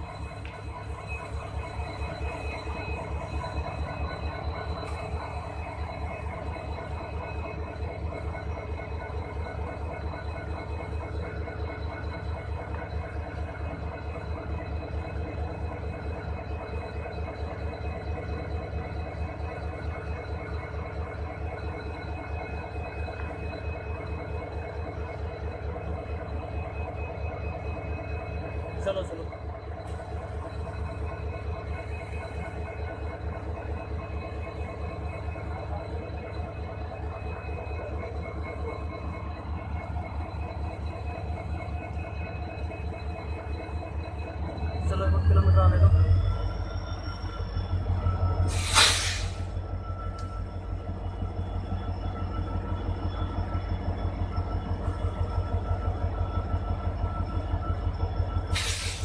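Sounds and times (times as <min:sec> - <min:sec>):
locomotive engine pulsing: 0:00.0 - 0:59.0.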